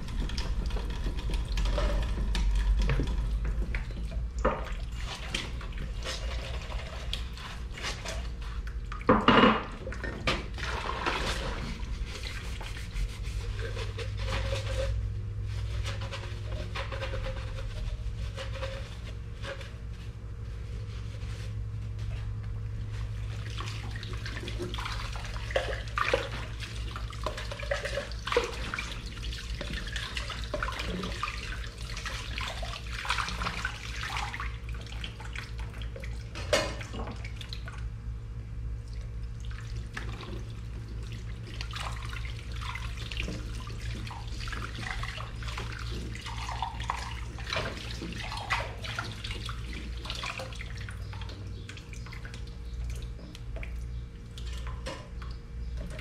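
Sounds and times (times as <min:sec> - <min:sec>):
steady low hum: 0:00.0 - 0:56.0
dishes clinking and knocking: 0:09.1 - 0:10.3
running tap water: 0:23.3 - 0:37.9, 0:39.3 - 0:53.7.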